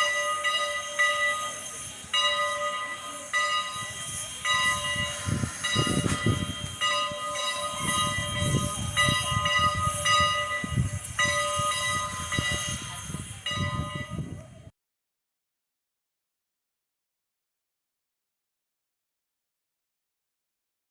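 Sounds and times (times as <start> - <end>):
steady high ringing tones: 0.0 - 14.7
train car rolling on rails: 0.0 - 14.7.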